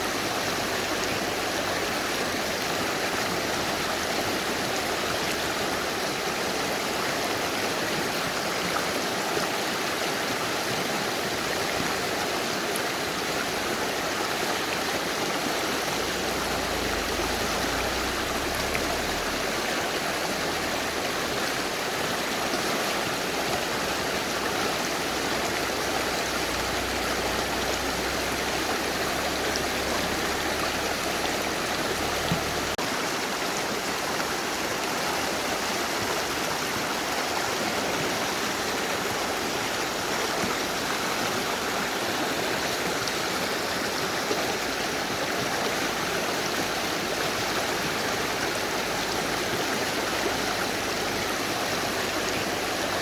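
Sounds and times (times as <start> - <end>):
river rushing over rocks: 0.0 - 53.0.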